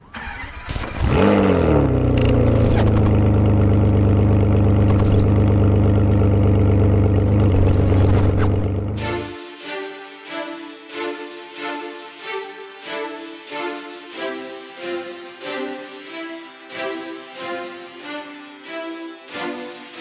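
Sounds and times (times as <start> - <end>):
car engine starting and idling: 0.0 - 9.3.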